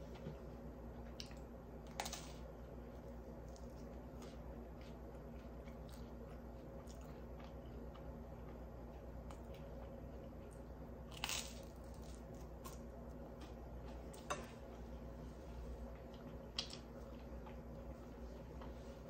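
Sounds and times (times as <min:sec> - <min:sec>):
crunching toast: 0:11.1 - 0:12.9.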